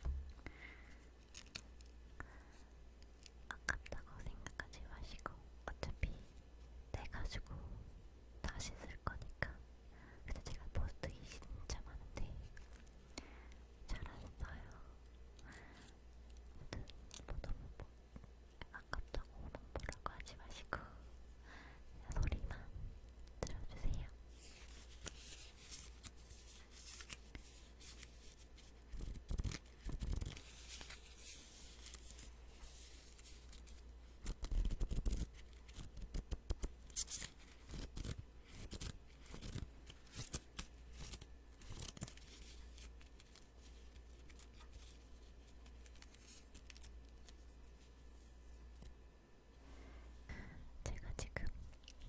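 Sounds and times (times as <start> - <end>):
sticky notes peeling and crackling: 24.6 - 47.6.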